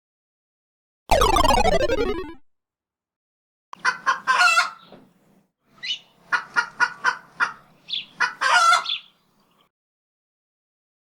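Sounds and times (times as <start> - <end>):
chicken clucking: 3.8 - 4.9, 5.8 - 9.1.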